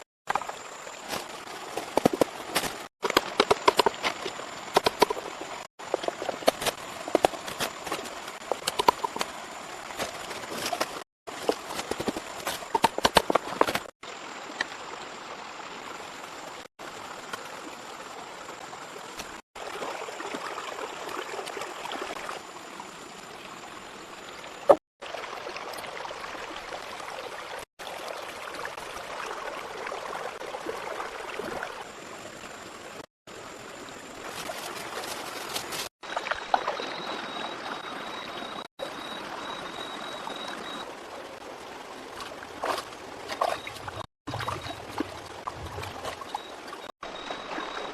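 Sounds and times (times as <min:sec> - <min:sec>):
water rushing: 0:33.8 - 0:47.9.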